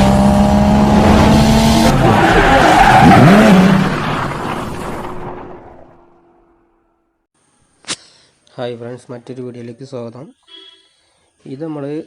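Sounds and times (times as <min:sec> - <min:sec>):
race car engine high revs: 0:00.0 - 0:04.0
tyre squeal and skidding: 0:01.9 - 0:05.3.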